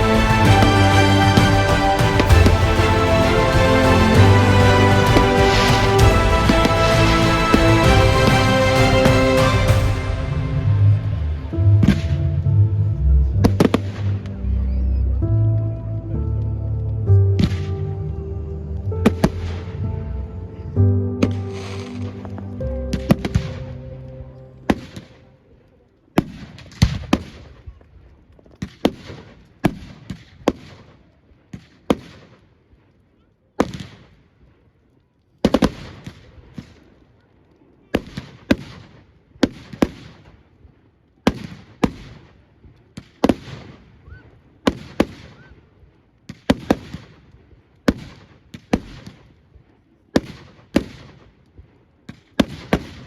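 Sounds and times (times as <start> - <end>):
fireworks bursting with echo: 0.0 - 12.2, 21.2 - 25.3, 35.4 - 36.9, 37.9 - 40.5, 41.2 - 45.6, 46.3 - 53.0.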